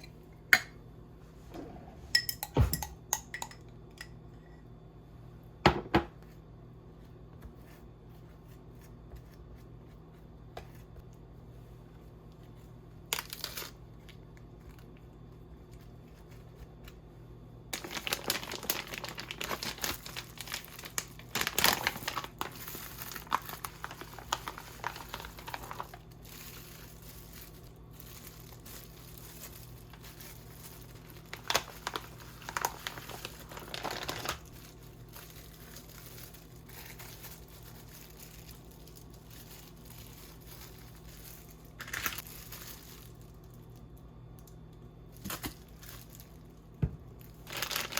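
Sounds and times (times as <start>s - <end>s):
faint steady hum: 0.0s - 47.9s
packaging crinkling: 13.1s - 15.0s, 17.7s - 44.5s, 45.1s - 47.9s.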